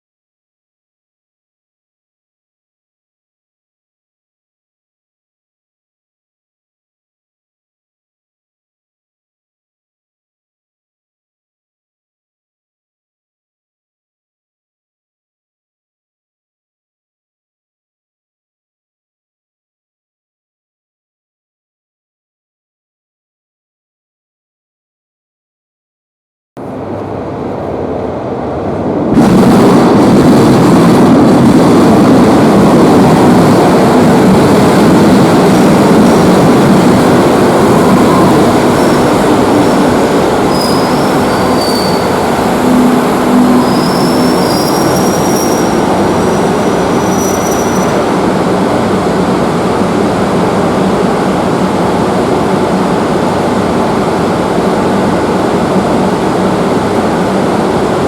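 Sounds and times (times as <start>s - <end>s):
train wheels and motors rumbling: 26.6s - 58.0s
high wheel squeals: 40.4s - 48.0s.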